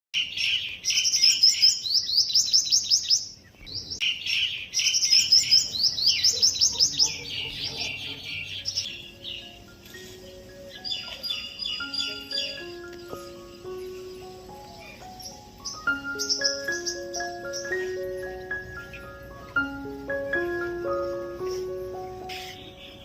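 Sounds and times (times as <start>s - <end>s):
songbird chirping: 0.1s - 23.0s
faint music: 5.0s - 23.0s.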